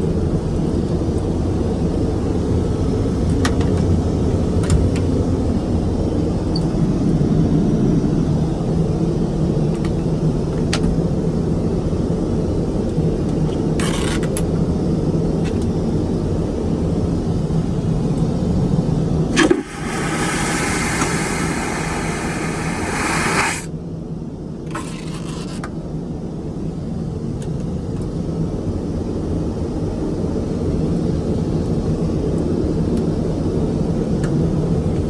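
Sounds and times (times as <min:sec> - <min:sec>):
airliner cabin drone: 0:00.0 - 0:25.0
toilet flush click: 0:19.3 - 0:23.7
vacuum toilet suction hiss: 0:19.3 - 0:23.7.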